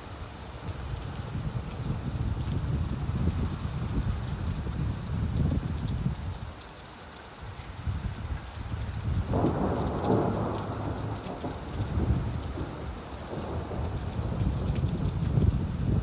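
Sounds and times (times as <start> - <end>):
steady rainfall: 0.0 - 16.0
rumble of thunder: 9.0 - 16.0.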